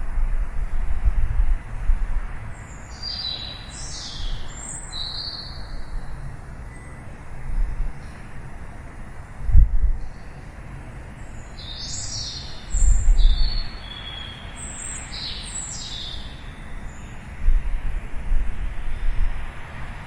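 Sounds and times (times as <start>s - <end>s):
songbirds chirping: 2.2s - 9.4s, 10.0s - 18.1s
low rumbles: 9.3s - 10.1s.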